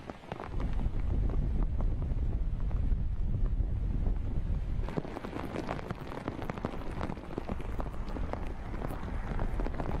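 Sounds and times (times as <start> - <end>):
heavy rain on floodwater: 0.0 - 2.7, 4.8 - 10.0.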